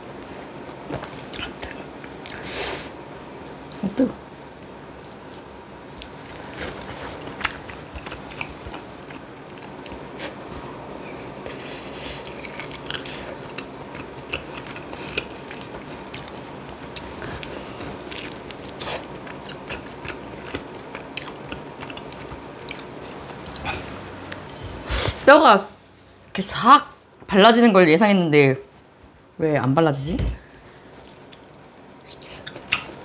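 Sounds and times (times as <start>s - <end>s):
person chewing food: 5.0s - 24.8s, 30.8s - 33.0s.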